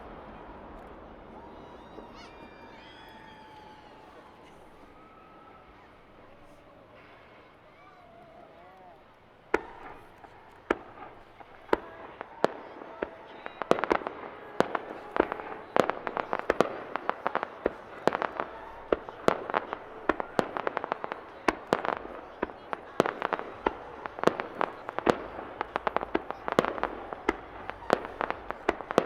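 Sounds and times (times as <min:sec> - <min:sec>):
firework shells bursting: 0:09.5 - 0:29.0.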